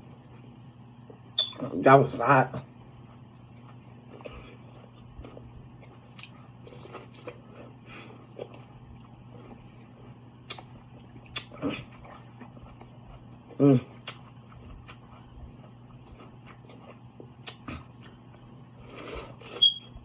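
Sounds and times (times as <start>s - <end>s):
faint steady hum: 0.0s - 20.0s
person chewing and biting: 3.0s - 19.8s.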